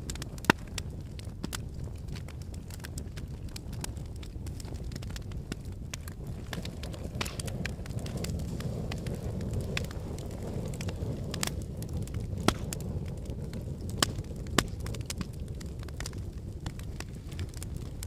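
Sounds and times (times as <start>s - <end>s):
burning wood crackling and popping: 0.0s - 18.0s
flames rumbling: 0.0s - 18.0s.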